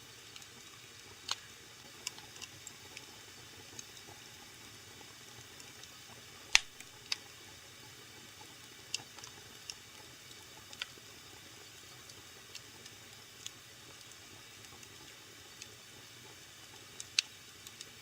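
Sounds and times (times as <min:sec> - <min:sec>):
faint steady hiss: 0:00.0 - 0:18.0
wood fire crackling: 0:05.6 - 0:07.3.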